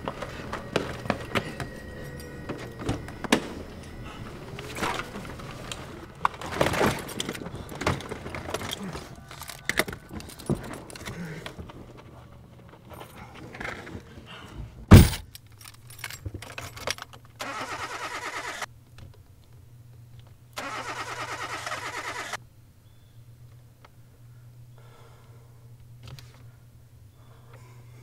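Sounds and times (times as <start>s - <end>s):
car starter cranking engine: 17.4s - 18.7s, 20.6s - 22.4s.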